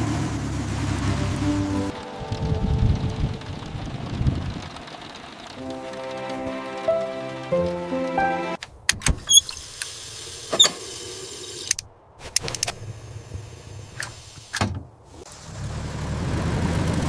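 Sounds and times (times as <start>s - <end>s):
faint low rumble: 0.0s - 6.3s.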